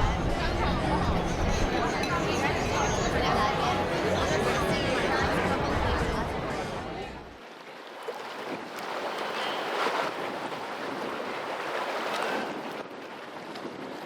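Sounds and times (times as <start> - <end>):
water washing and lapping: 7.2 - 14.0.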